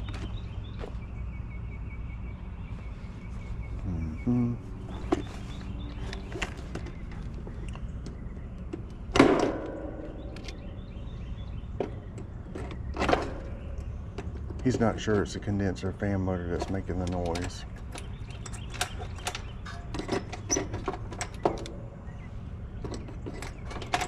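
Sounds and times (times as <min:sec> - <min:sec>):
metal parts clanking: 0:14.5 - 0:21.9, 0:22.8 - 0:24.0.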